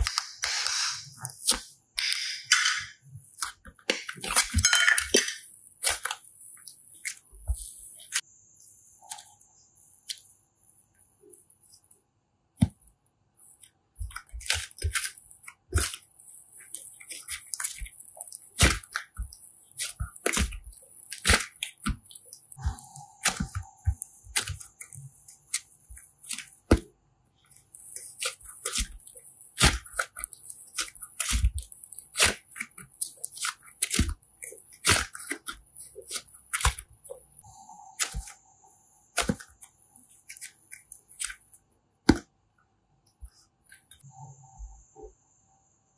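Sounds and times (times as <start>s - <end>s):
slime crackling and clicking: 14.0s - 22.6s, 23.2s - 26.8s, 27.5s - 37.4s.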